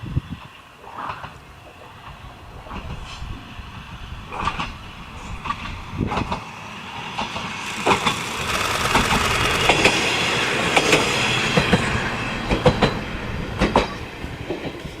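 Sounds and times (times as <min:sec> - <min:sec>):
railcar running: 0:00.0 - 0:15.0.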